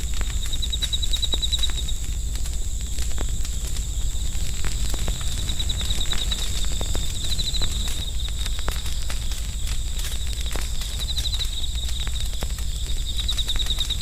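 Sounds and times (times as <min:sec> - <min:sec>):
campfire crackling and popping: 0:00.0 - 0:14.0
insects trilling: 0:00.0 - 0:14.0
steady low rumble: 0:00.0 - 0:14.0.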